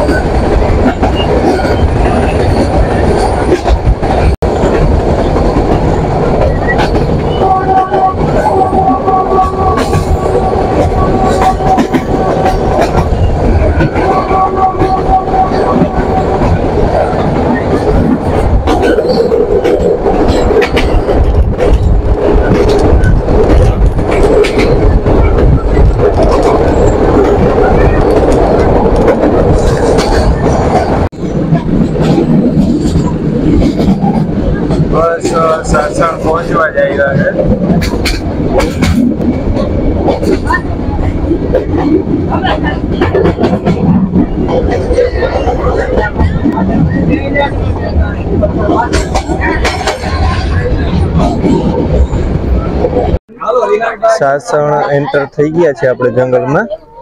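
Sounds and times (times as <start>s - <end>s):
wheels rumbling on rails: 0.0s - 57.0s
train horn: 7.3s - 13.0s, 13.8s - 16.7s.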